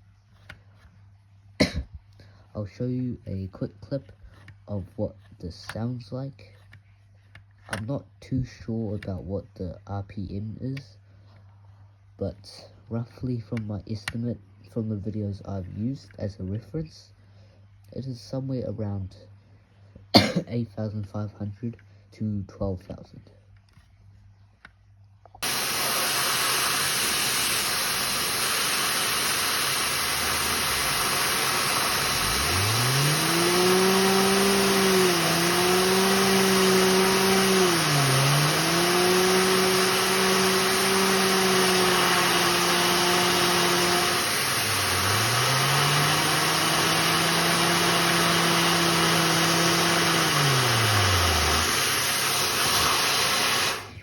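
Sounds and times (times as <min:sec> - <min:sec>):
vacuum cleaner rushing air: 0:25.4 - 0:54.0
engine pitched hum: 0:26.0 - 0:52.9.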